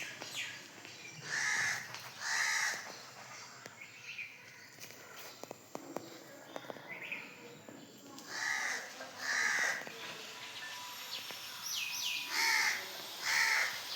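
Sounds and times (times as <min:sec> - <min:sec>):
crow cawing: 0:01.2 - 0:02.9, 0:08.3 - 0:09.8, 0:12.3 - 0:13.8.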